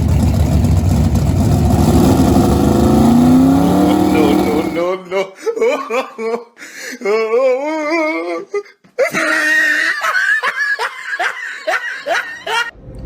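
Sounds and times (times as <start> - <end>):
people laughing loudly: 5.4 - 6.5, 9.0 - 12.7.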